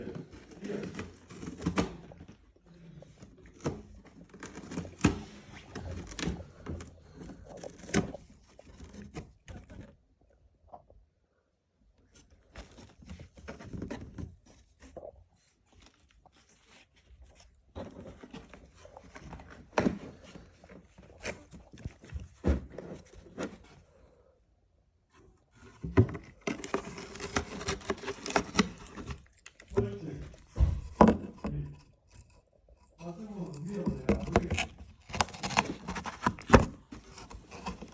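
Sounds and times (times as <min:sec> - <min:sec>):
cat scratching in cardboard box: 0:00.0 - 0:10.0, 0:12.1 - 0:24.1, 0:25.1 - 0:37.9.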